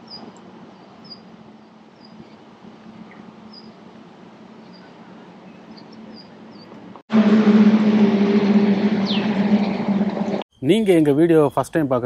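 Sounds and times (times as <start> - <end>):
small birds chirping: 0.0 - 2.4, 3.0 - 3.8, 4.6 - 6.8
steady outdoor hiss: 0.0 - 12.0.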